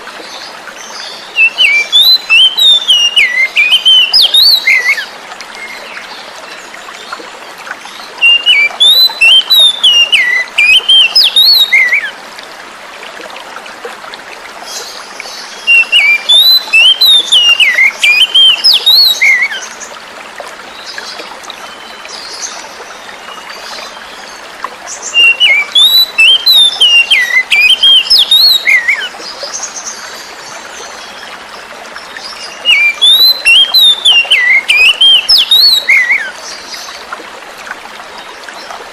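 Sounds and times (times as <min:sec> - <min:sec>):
flowing water rushing: 0:00.0 - 0:38.9
bird singing whistled notes: 0:01.4 - 0:05.1, 0:08.2 - 0:12.1, 0:15.6 - 0:19.6, 0:25.1 - 0:29.1, 0:32.4 - 0:36.4.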